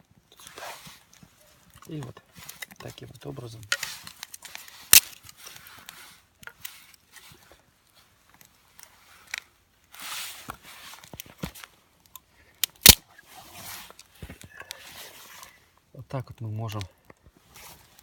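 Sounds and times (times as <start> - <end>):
campfire crackling: 0.1 - 18.0
logs being shifted: 0.4 - 7.5.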